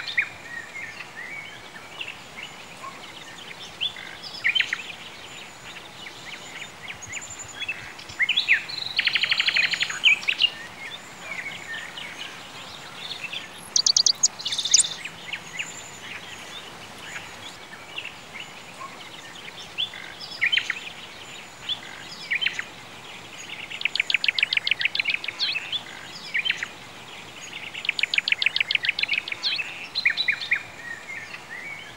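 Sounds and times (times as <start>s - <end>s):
songbirds chirping: 0.0s - 31.9s
steady background hiss: 0.0s - 31.9s
fast bird trill: 13.6s - 15.0s.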